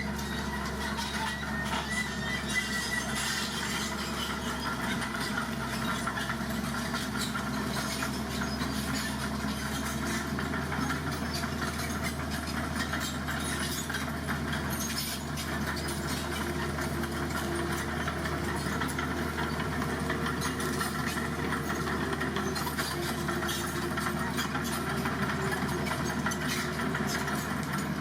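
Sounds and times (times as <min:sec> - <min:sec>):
truck diesel engine idling: 0:00.0 - 0:28.0.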